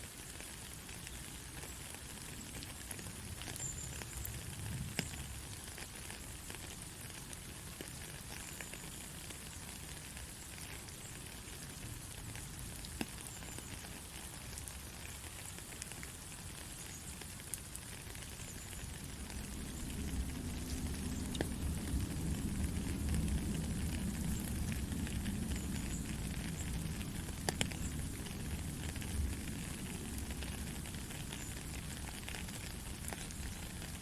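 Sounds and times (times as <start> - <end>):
gentle rain hissing: 0.0 - 34.0
raindrop ticks: 0.2 - 34.0.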